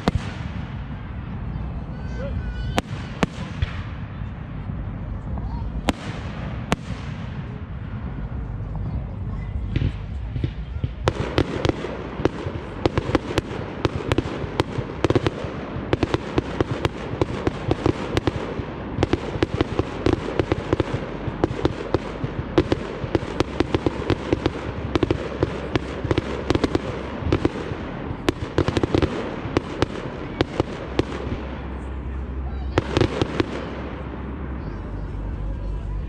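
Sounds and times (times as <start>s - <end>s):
fireworks bangs and crackles: 0.0s - 36.0s
low rumble: 0.0s - 36.0s.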